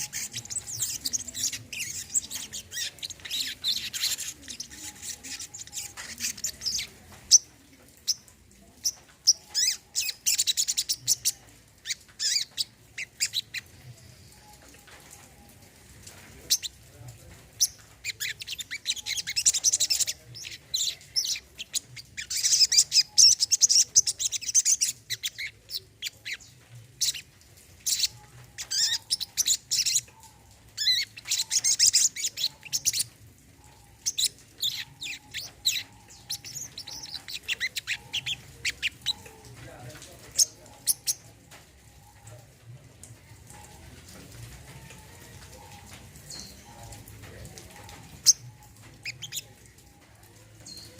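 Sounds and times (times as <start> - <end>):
bird chirping twitter: 0.0 - 14.6, 17.6 - 33.1, 33.7 - 39.4.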